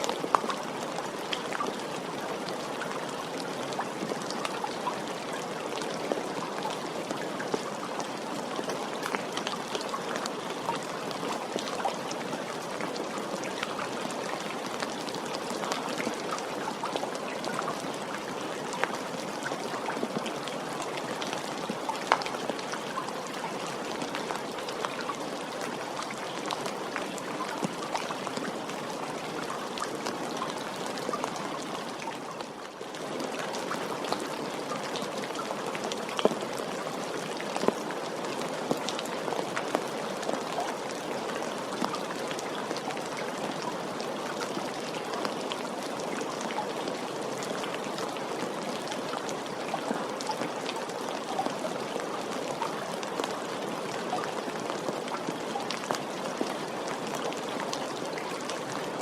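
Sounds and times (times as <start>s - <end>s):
steady rain: 0.0s - 59.0s
raindrops ticking: 41.6s - 46.6s.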